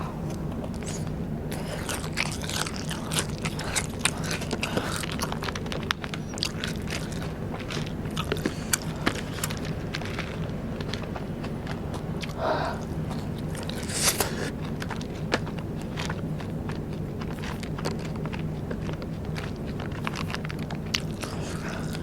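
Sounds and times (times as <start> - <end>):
low hum: 0.0 - 22.0
person chewing crunchy snacks: 0.0 - 22.0.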